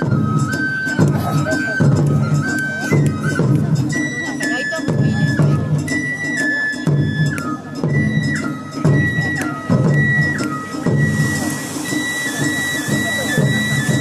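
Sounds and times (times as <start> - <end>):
bamboo flute melody: 0.0 - 14.0
drums in steady rhythm: 0.0 - 14.0
high steady hiss: 7.9 - 14.0.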